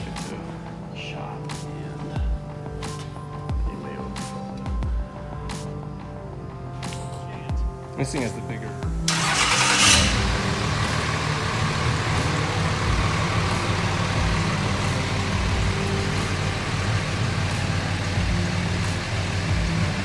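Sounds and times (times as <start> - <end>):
diesel engine idling: 9.1 - 20.0.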